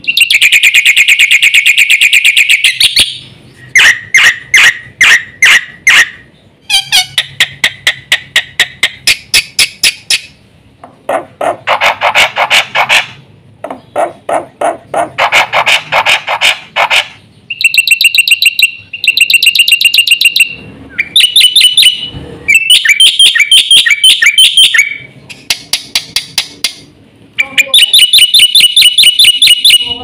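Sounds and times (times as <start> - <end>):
bird singing: 0.0 - 4.5, 17.2 - 26.6, 27.4 - 30.0.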